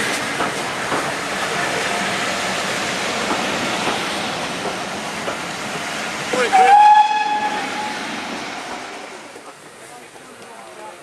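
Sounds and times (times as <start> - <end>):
steam train rumbling: 0.0 - 11.0
steam locomotive whistle: 6.5 - 8.0
faint rail clicks: 8.7 - 10.7.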